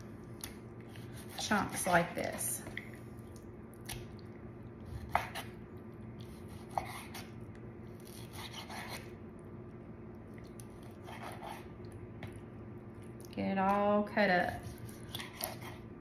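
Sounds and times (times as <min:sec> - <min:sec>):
knife scraping meat: 0:04.9 - 0:05.6, 0:06.2 - 0:07.3, 0:08.0 - 0:09.1, 0:10.8 - 0:11.7, 0:14.4 - 0:15.9.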